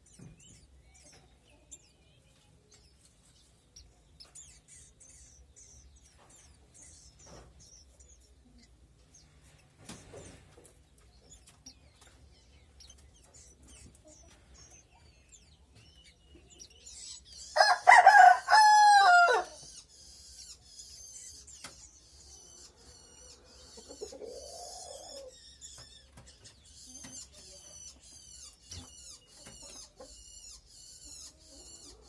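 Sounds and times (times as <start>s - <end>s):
small birds chirping: 0.0s - 32.0s
rooster crowing: 17.6s - 19.6s.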